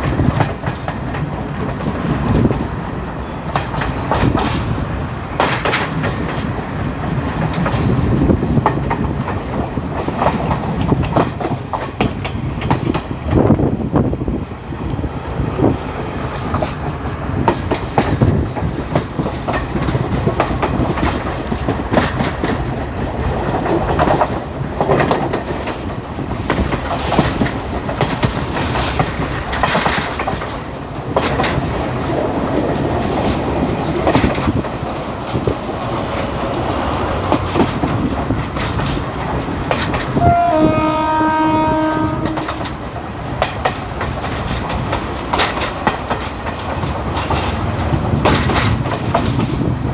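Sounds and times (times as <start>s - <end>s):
train wheels rumbling and knocking: 0.0s - 49.9s
train horn blast: 40.1s - 42.8s.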